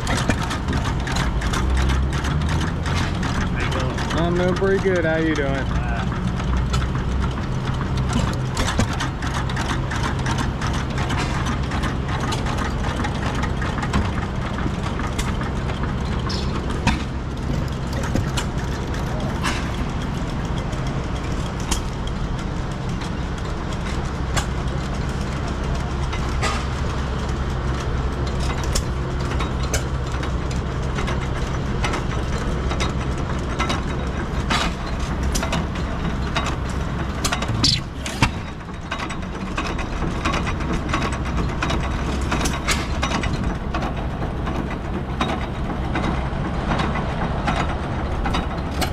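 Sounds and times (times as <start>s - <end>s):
old engines humming: 0.0s - 48.9s.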